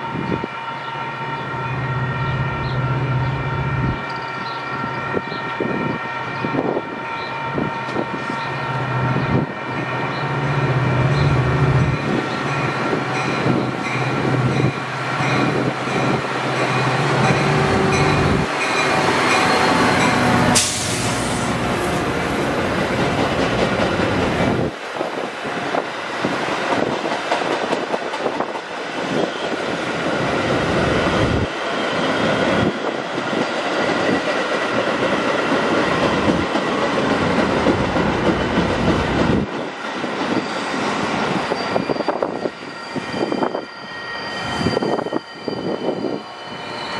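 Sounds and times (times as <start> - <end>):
locomotive engine humming: 7.6 - 24.8
train wheels clattering on rails: 12.0 - 30.0, 31.4 - 42.6.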